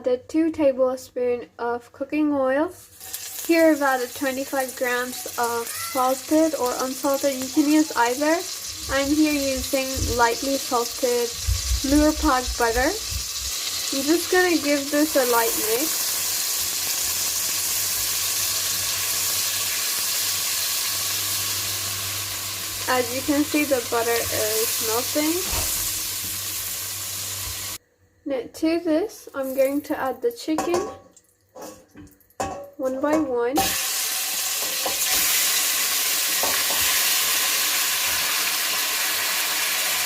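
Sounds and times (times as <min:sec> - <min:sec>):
butter sizzling in a pan: 0:02.8 - 0:27.8, 0:33.6 - 0:40.0
pieces knocking into pan: 0:30.6 - 0:35.4, 0:36.3 - 0:37.0.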